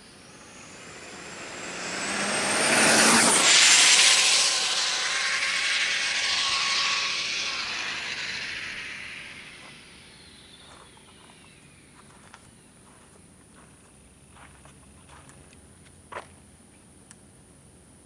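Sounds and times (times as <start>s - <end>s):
rc car motor whine: 0.0s - 11.5s.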